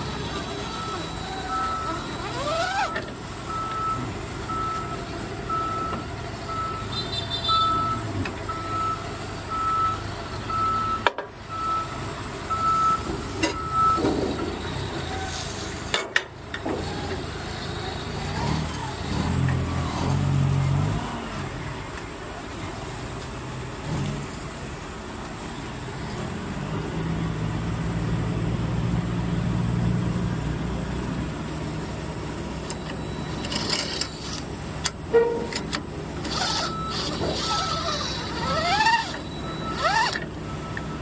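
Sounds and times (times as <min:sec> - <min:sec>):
vehicle backup alarm beeping: 0:00.0 - 0:15.3, 0:32.1 - 0:41.0
engine running: 0:00.0 - 0:41.0.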